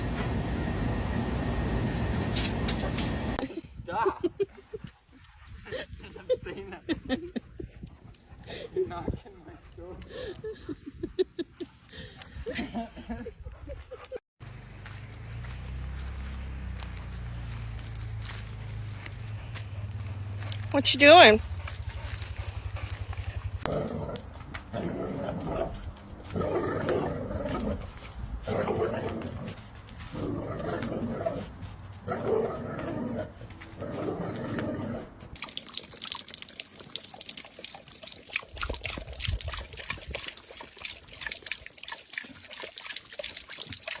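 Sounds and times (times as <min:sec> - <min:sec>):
crackling splashing water: 0:35.4 - 0:44.0.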